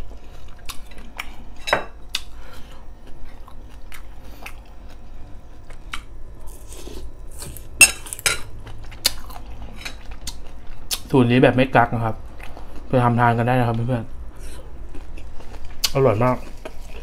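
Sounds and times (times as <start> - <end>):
chewing with wet crunches: 8.4 - 11.1, 14.6 - 17.0.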